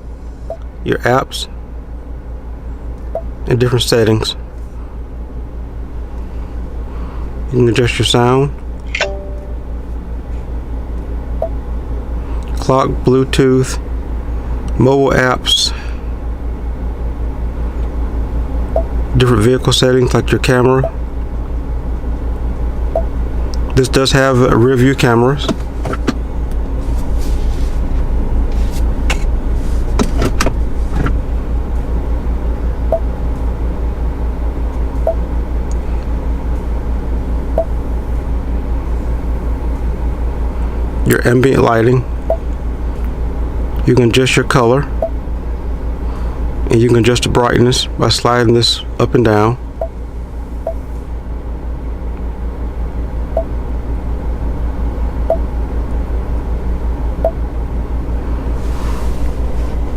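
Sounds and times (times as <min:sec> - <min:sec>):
car cabin low rumble: 0:00.0 - 0:59.9
short beeps: 0:09.0 - 0:09.7.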